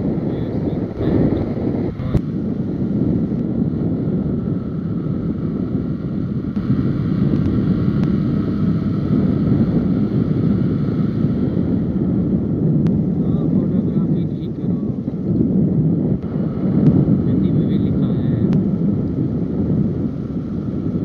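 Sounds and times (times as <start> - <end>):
road noise: 0.0 - 21.0
wind rushing over microphone: 0.0 - 21.0
motorcycle engine: 0.9 - 13.2.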